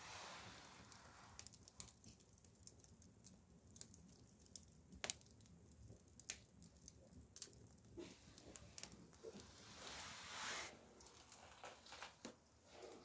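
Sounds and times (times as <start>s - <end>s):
bonfire crackling: 0.0s - 13.0s.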